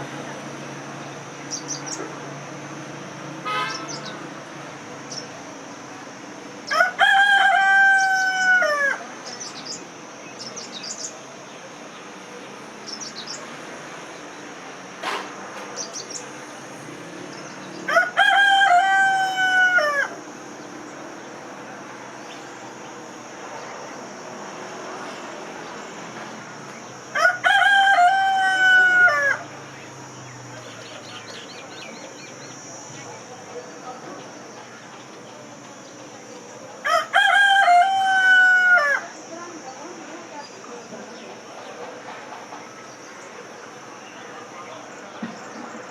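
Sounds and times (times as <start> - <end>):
small birds chirping: 1.0 - 2.1, 9.2 - 13.5, 15.8 - 16.4, 29.7 - 36.4
rooster crowing: 6.7 - 9.1, 17.8 - 20.4, 27.0 - 29.8, 36.8 - 39.3.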